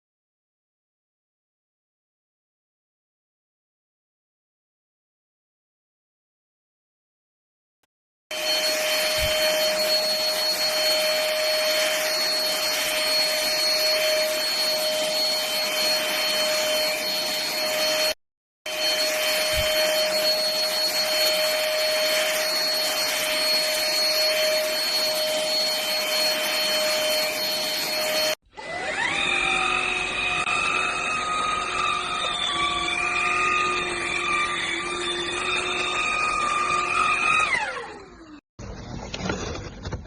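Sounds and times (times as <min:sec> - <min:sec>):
vacuum cleaner running: 0:08.3 - 0:38.4.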